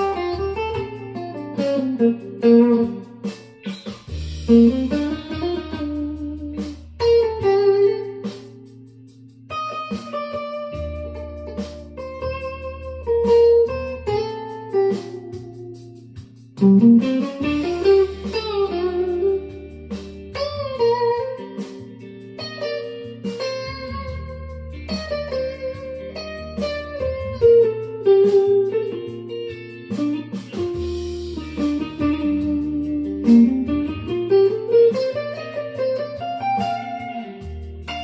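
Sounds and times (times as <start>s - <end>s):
electric guitar lead lines: 0.0s - 38.0s.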